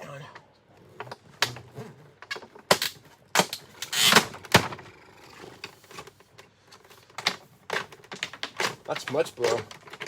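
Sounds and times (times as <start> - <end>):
hard plastic parts clicking: 5.6 - 10.0.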